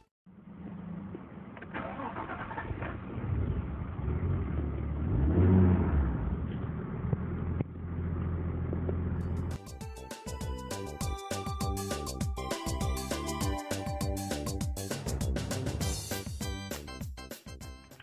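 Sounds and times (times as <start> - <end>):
car engine revving and idling: 0.3 - 9.6
engine starter cranking: 1.6 - 3.3.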